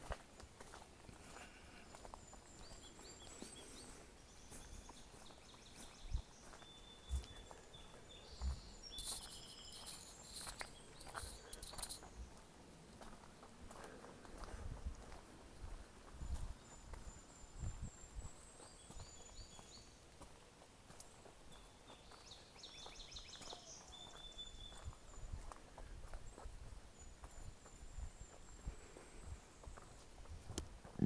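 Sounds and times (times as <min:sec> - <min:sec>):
footsteps walking: 0:00.0 - 0:07.7, 0:08.4 - 0:16.6
small birds chirping: 0:00.6 - 0:31.0.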